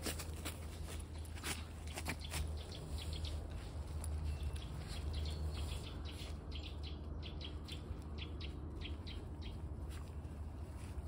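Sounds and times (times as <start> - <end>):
small bird chirping: 0.9 - 10.3.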